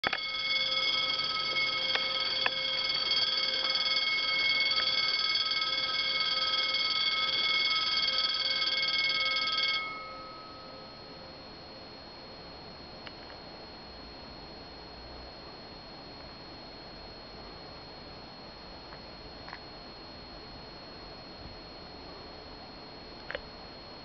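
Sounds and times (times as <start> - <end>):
level crossing bell ringing: 0.0 - 11.0
faint high steady tone: 0.0 - 18.5.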